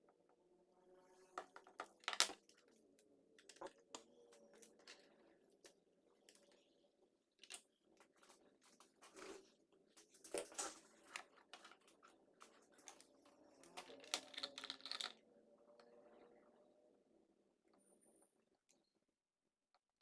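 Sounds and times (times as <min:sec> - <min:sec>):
faint clicks of small parts: 0:01.4 - 0:16.0
scraping and crinkling: 0:07.4 - 0:15.2.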